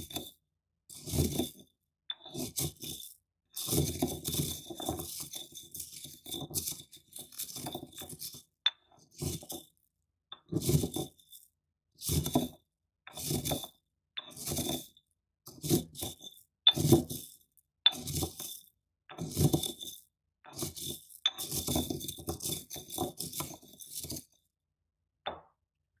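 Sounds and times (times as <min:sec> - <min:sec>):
corn crushed in stone bowl: 0:02.4 - 0:08.5, 0:19.2 - 0:20.0, 0:20.6 - 0:24.3.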